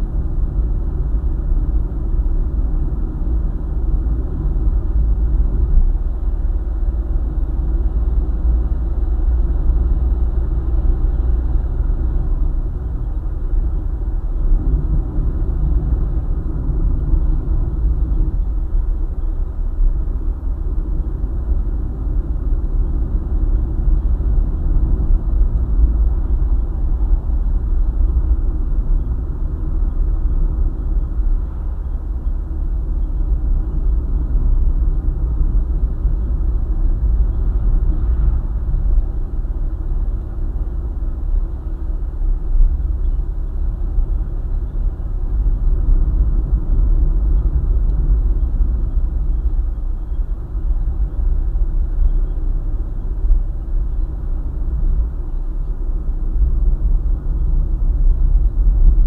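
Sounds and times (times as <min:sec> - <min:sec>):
car driving at road speed: 0:00.0 - 0:59.0.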